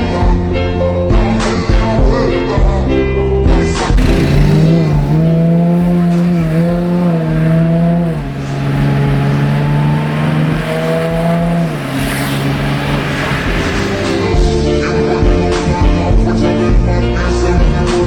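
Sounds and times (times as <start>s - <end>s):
car engine revving: 4.0s - 15.1s.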